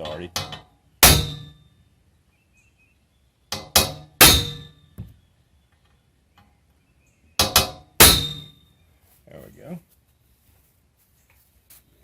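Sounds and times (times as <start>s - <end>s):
hammer striking metal punch: 0.0s - 1.6s, 3.5s - 5.1s, 7.4s - 8.6s.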